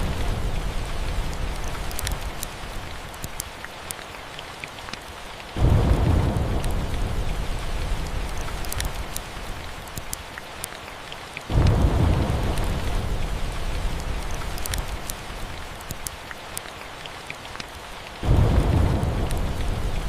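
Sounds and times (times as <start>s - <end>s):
thunder rumbling: 0.0s - 2.4s, 5.6s - 9.1s, 11.5s - 15.7s, 18.2s - 20.0s
faint crackles: 0.0s - 5.7s, 6.3s - 20.0s
steady rain: 0.0s - 20.0s.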